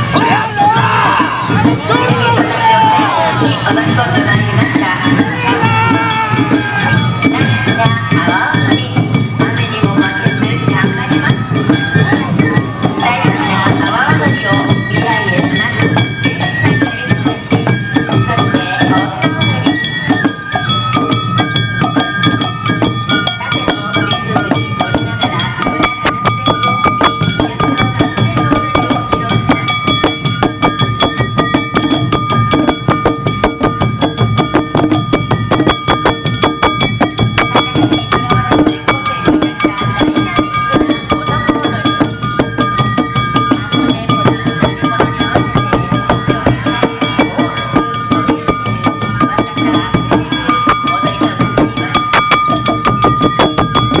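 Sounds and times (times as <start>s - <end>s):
drums beating: 0.0s - 54.0s
metallic strikes: 18.6s - 54.0s.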